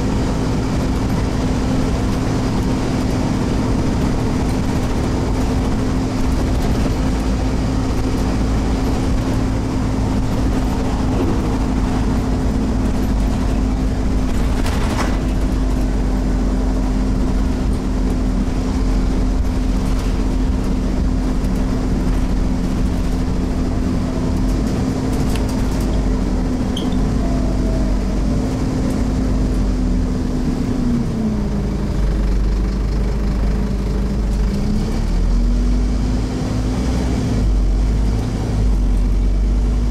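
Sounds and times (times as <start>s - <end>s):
bus diesel engine droning: 0.0s - 39.9s
knocks and rattles: 4.0s - 16.0s.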